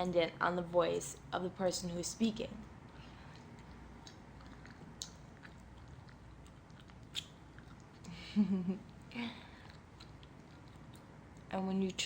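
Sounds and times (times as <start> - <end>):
gum chewing mouth smacks: 2.8 - 8.2, 8.8 - 11.5.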